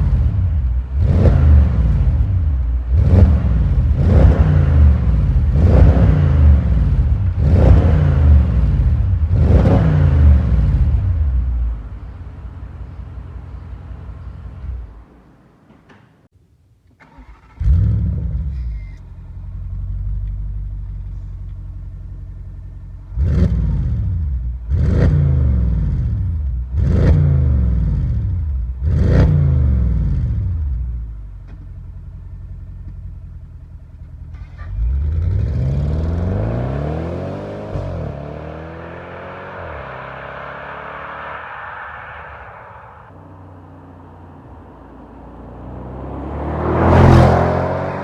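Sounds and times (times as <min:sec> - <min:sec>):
car engine idling: 0:00.0 - 0:09.7, 0:10.3 - 0:15.6, 0:18.5 - 0:23.3, 0:30.5 - 0:35.4, 0:37.8 - 0:46.0
car engine starting and revving: 0:00.0 - 0:15.2, 0:16.9 - 0:48.0.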